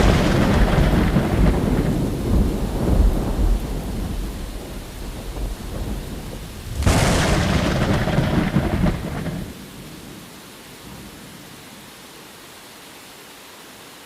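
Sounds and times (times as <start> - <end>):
sharp thunderclap: 0.0 - 9.6
thunder rumbling: 0.0 - 9.6.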